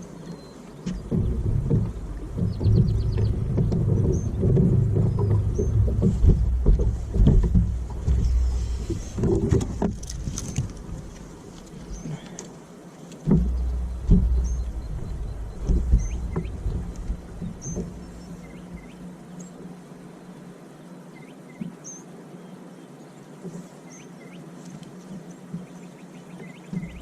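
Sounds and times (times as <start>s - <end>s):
steady low hum: 0.0s - 20.1s
low thumps and knocks: 0.8s - 11.9s, 13.2s - 19.0s, 26.7s - 27.0s
small bird chirping: 13.6s - 16.6s.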